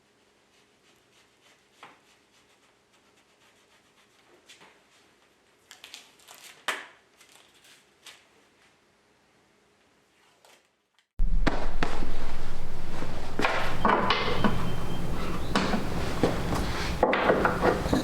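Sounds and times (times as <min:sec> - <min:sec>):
faint steady hum: 0:11.2 - 0:18.0.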